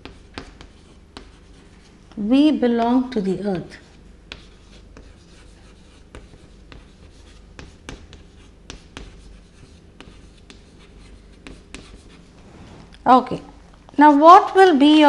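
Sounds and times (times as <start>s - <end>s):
writing strokes on a board: 0.0s - 2.0s, 2.6s - 12.5s.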